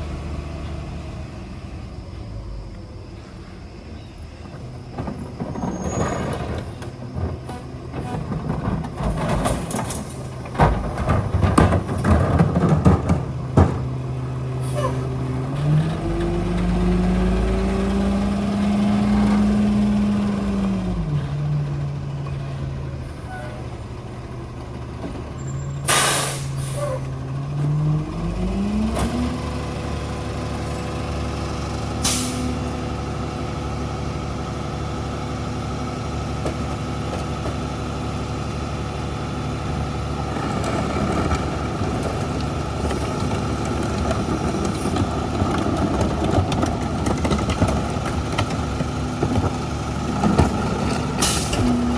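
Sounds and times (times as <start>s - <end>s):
garbage truck engine revving: 4.5s - 51.9s
air brakes hissing: 25.8s - 27.1s, 32.0s - 32.6s, 51.2s - 51.7s.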